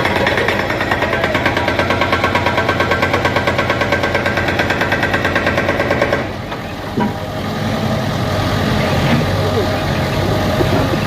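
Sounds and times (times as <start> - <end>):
machine pounding rapidly: 0.0 - 6.5
low engine hum: 6.2 - 11.0.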